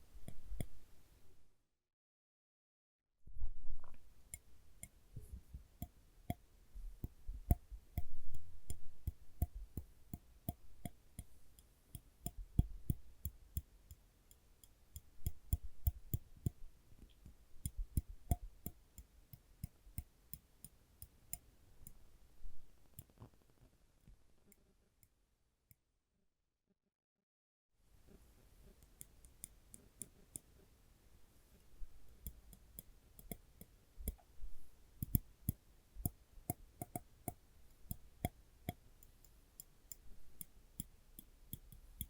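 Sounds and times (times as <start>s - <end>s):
tweezers clicking: 39.9s - 42.0s.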